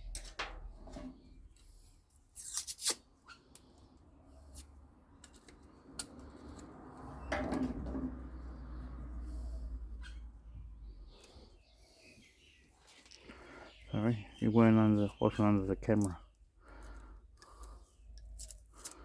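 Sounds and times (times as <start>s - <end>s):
scraping or tearing strokes: 2.4s - 3.1s.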